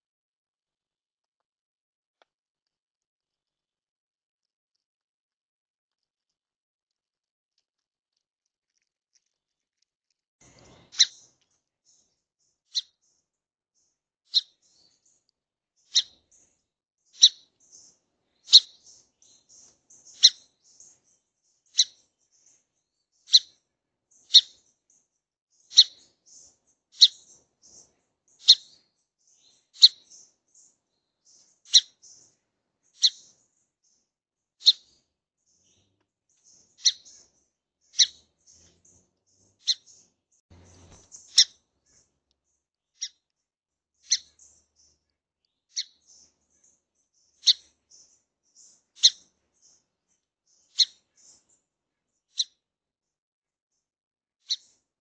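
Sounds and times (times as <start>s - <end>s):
songbird chip calls: 10.4s - 11.3s, 14.3s - 15.2s, 15.8s - 16.5s, 17.1s - 22.6s, 23.2s - 34.0s, 34.6s - 40.0s, 40.6s - 42.0s, 43.0s - 43.3s, 44.0s - 45.0s, 45.7s - 49.8s, 50.5s - 51.4s, 52.3s - 52.6s, 54.4s - 54.7s.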